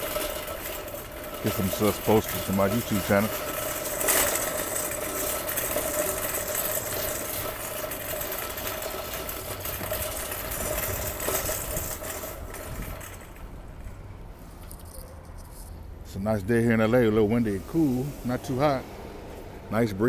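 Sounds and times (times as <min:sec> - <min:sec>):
vehicle engine whining: 0:00.0 - 0:20.0.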